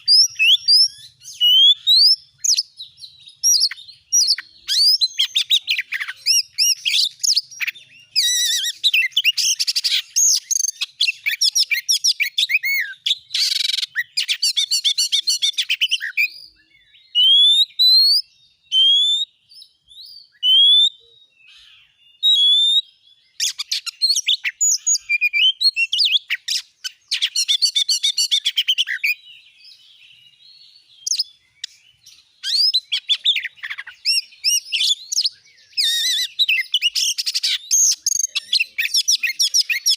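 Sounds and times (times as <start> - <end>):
bird chattering song: 0.0 - 39.9
bird rising whistles: 31.0 - 39.9.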